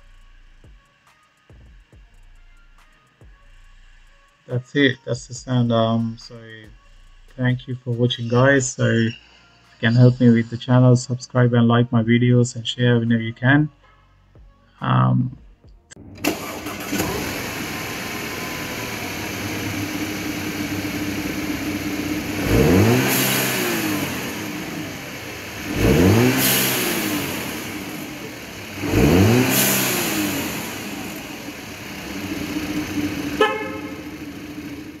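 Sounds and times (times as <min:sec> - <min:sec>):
car engine idling: 0:16.0 - 0:35.0
car engine revving: 0:16.0 - 0:35.0.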